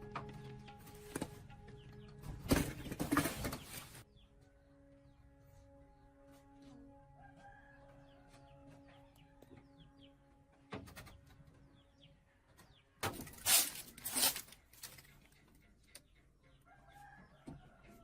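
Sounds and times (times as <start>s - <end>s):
small birds chirping: 8.1s - 17.7s.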